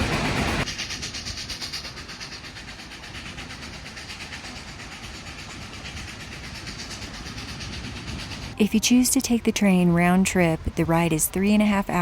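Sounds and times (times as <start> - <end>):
steam hiss: 0.0 - 8.6
steam train rhythmic beat: 0.0 - 12.0.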